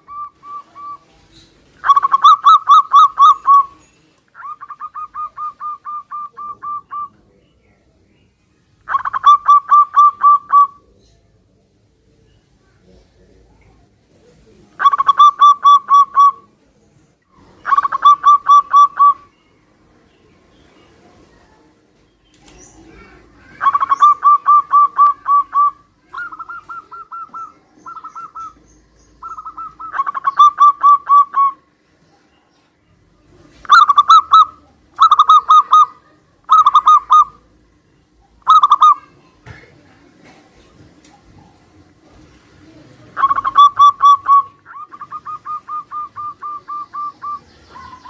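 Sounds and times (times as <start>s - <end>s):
doves cooing: 0.0s - 3.8s, 4.4s - 7.3s, 8.8s - 11.0s, 14.2s - 16.6s, 17.4s - 19.3s, 22.4s - 31.7s, 33.3s - 37.6s, 38.2s - 48.0s.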